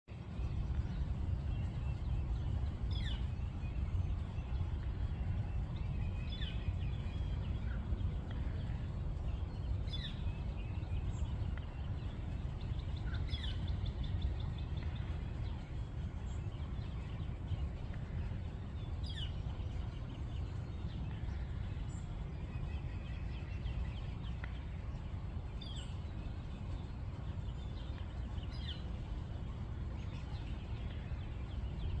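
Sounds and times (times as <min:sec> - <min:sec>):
low background rumble: 0:00.1 - 0:32.0.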